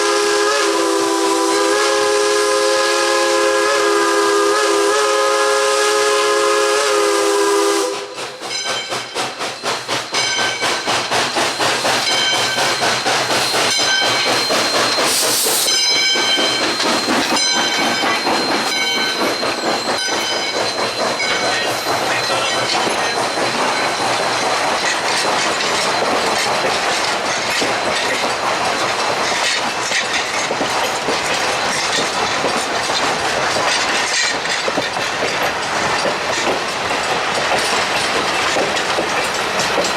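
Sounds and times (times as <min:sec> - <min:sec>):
steam locomotive whistle: 0:00.0 - 0:08.5
train wheels clacking over rail joints: 0:05.5 - 0:39.9.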